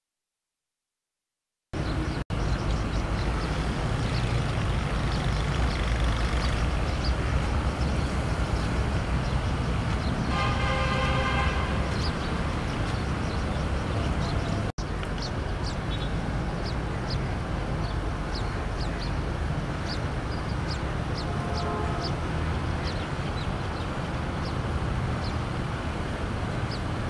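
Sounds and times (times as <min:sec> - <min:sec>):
traffic rumble: 0:01.8 - 0:27.0
vehicle horn honk: 0:10.3 - 0:11.9, 0:21.3 - 0:22.2.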